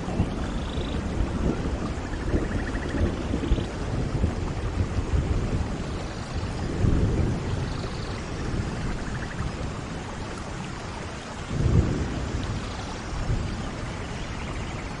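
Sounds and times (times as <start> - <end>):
heavy rain: 0.0 - 15.0
thunder rolling: 6.5 - 9.9, 11.5 - 15.0.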